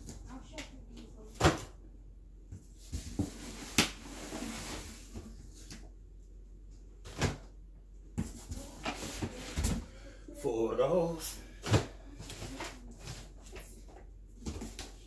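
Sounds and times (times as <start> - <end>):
cardboard rustling and sliding: 2.8 - 5.8.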